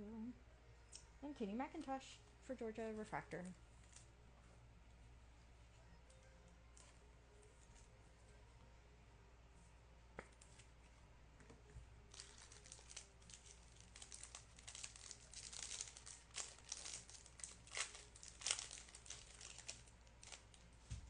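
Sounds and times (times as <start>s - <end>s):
wrapper torn open and crinkled: 12.1s - 20.6s.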